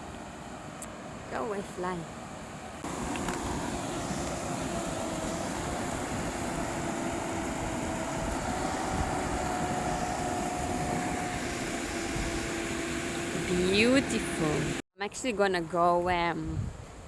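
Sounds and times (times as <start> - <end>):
engine drone: 2.7 - 14.8.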